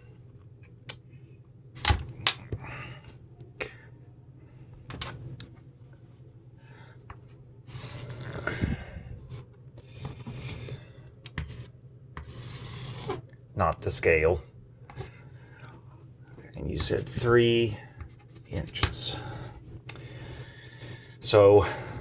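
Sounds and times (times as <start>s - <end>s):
steady low hum: 0.0s - 22.0s
scratchy drawing strokes: 11.5s - 13.2s.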